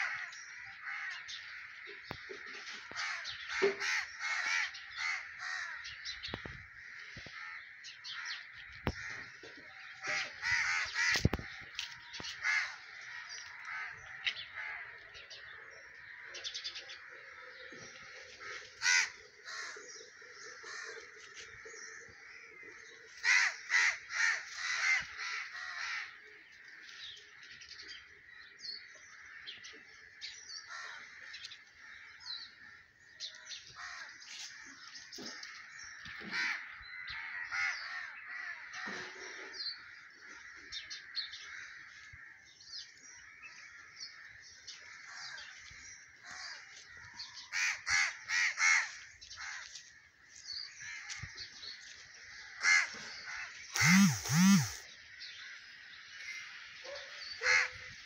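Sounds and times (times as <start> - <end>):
birds calling: 0.0 - 58.0.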